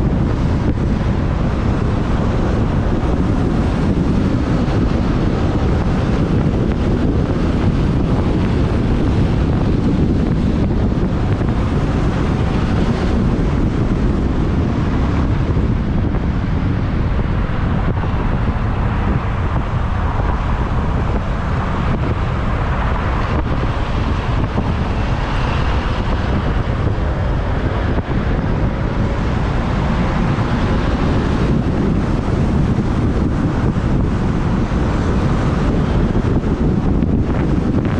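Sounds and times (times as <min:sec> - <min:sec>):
road traffic: 0:00.0 - 0:37.9
wind rumble on microphone: 0:00.0 - 0:37.9.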